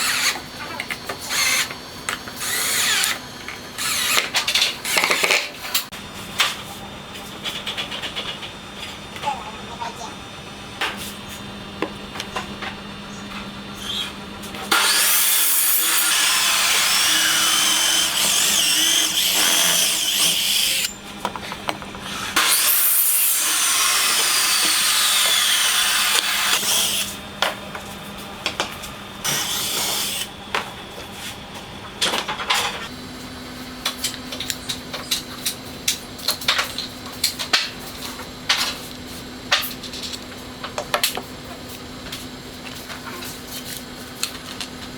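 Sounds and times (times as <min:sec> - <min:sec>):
power tool running on wood: 0:00.0 - 0:05.8, 0:13.8 - 0:27.6, 0:28.5 - 0:30.6.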